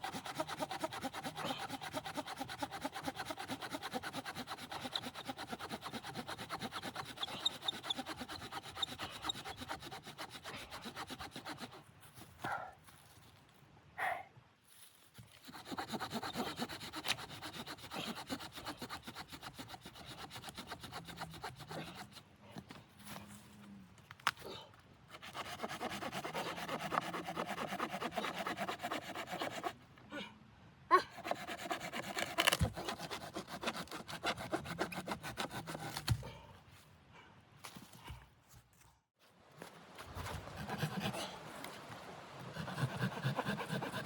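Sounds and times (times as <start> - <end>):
hand saw cutting wood: 0.0 - 11.8, 15.3 - 22.3, 25.1 - 29.8, 31.1 - 36.2, 40.0 - 44.0.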